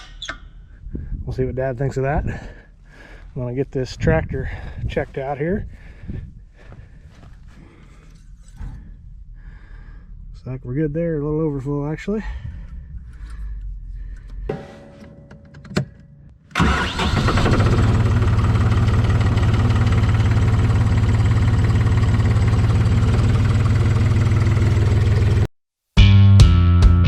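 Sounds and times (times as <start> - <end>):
tractor engine starting and running: 16.5 - 25.5
music: 26.0 - 27.0.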